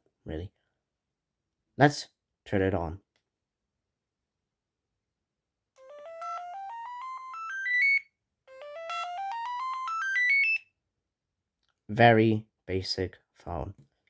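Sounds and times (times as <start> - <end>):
phone power-on jingle: 5.8 - 10.6.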